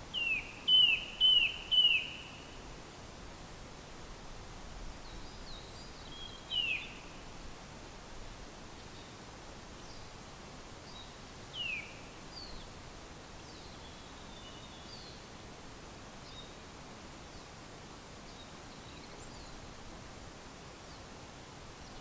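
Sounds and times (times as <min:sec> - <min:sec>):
faint outdoor background hiss: 0:00.0 - 0:22.0
small birds chirping: 0:00.1 - 0:02.6, 0:05.0 - 0:07.2.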